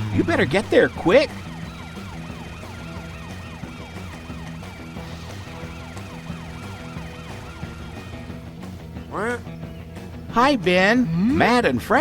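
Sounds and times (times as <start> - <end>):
emergency siren yelping: 0.0 - 8.4
background music: 0.0 - 12.0.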